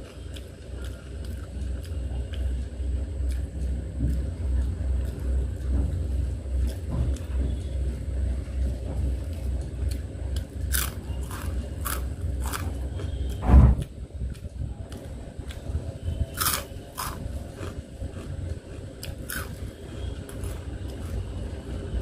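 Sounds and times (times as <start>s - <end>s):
chewing rice: 0.0s - 7.8s, 8.6s - 13.4s, 16.3s - 21.3s.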